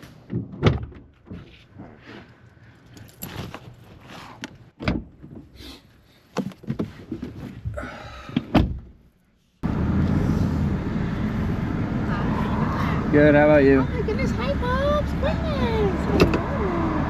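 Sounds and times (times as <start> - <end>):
vehicle rumble: 8.9 - 17.0.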